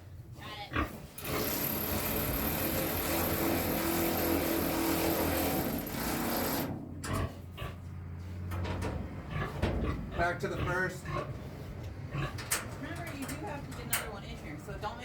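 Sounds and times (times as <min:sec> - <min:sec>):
electric drill running: 0:01.2 - 0:06.7.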